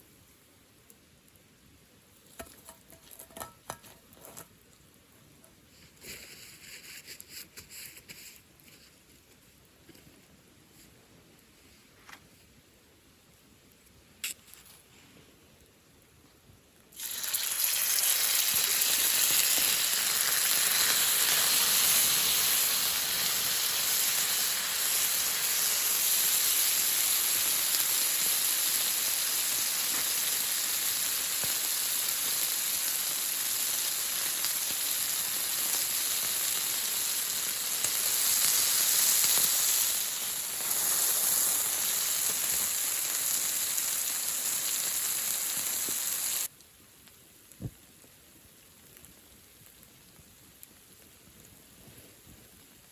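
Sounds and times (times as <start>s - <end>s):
loud hissing and sizzling: 5.6s - 8.7s, 16.9s - 46.6s.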